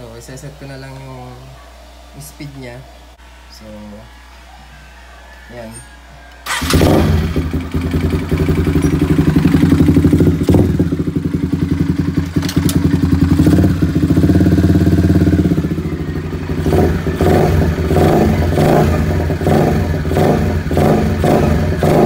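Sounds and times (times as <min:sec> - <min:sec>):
motorcycle engine idling: 0:06.4 - 0:22.0.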